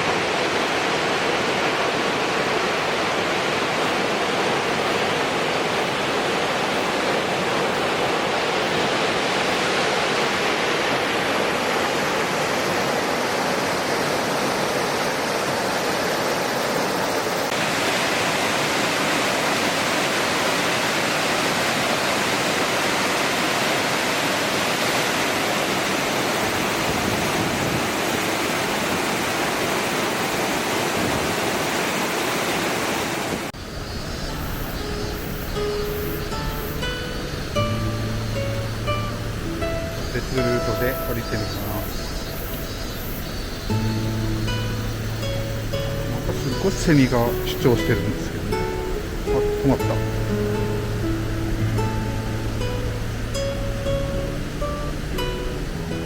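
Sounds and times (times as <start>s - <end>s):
waterfall rushing: 0.0s - 56.0s
music: 34.8s - 42.0s, 43.6s - 56.0s.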